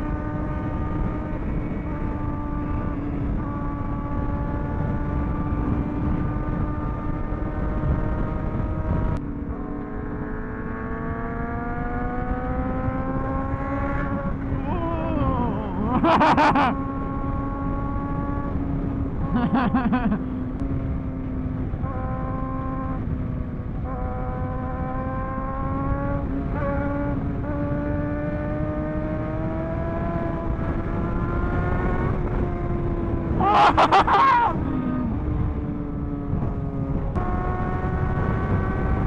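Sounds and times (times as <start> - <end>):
motorcycle engine cruising: 0.0 - 39.0
motorcycles revving nearby: 0.0 - 39.0
wind and road noise: 0.0 - 39.0.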